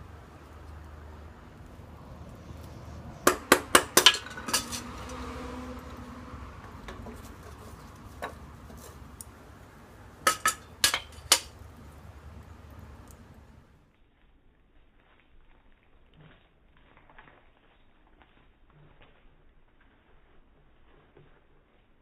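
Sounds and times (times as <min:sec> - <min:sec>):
metal cookware clinking: 0:03.2 - 0:05.3, 0:10.2 - 0:11.6.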